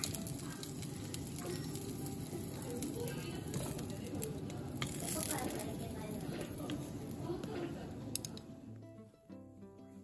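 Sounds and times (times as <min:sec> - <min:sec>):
food sizzling in frying: 0:00.0 - 0:07.8.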